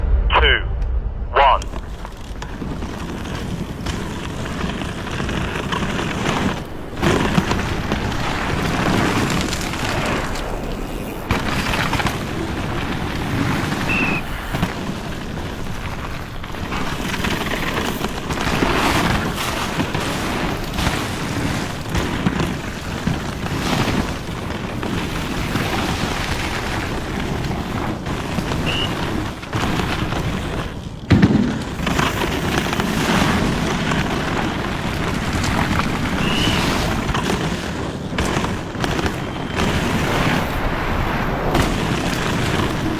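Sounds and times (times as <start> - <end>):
wind buffeting microphone: 0.0 - 16.8, 33.3 - 42.9.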